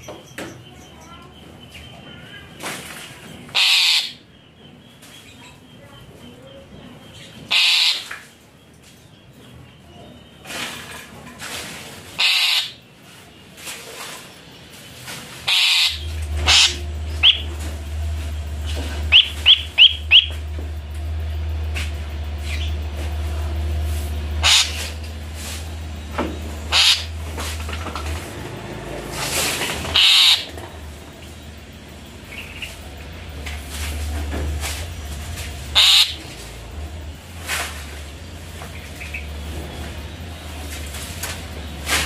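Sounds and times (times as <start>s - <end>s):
bird chirps: 0.0s - 10.5s, 14.3s - 27.6s, 29.6s - 33.7s, 34.8s - 36.3s, 38.1s - 41.9s
low hum: 15.3s - 42.0s
harsh rasping bursts: 15.4s - 20.4s, 24.0s - 30.5s, 35.6s - 36.6s.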